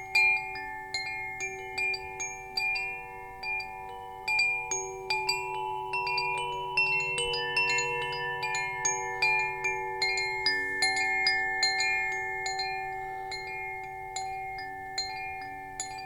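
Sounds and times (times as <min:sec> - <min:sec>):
metal wind chimes ringing: 0:00.0 - 0:16.0.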